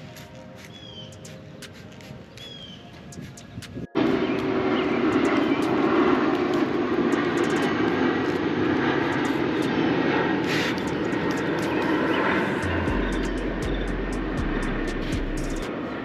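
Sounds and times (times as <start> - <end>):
motor running loudly: 12.6 - 15.7.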